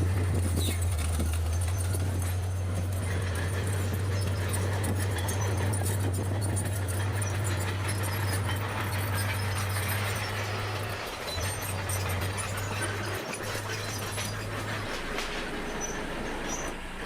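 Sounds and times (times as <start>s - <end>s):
bulldozer diesel engine droning: 0.0s - 17.0s
light rattling and clicks: 0.2s - 16.8s.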